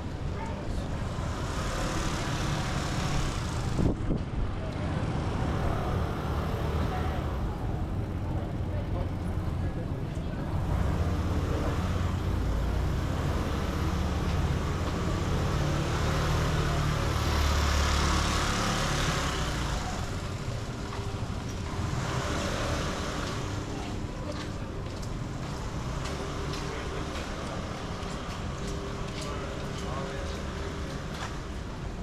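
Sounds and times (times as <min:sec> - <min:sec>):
vehicle engine rumbling: 0:00.0 - 0:32.0
tyres hissing on wet road: 0:01.1 - 0:03.9.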